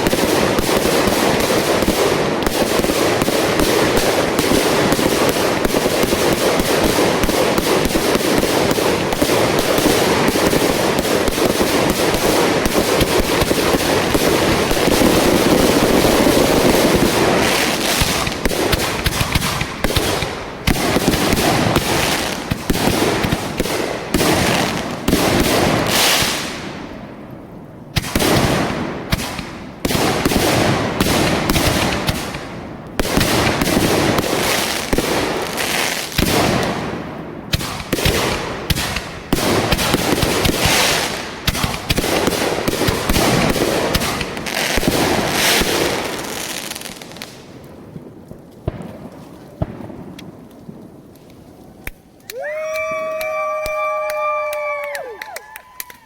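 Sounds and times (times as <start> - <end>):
fireworks bangs and crackling: 0.0 - 55.8.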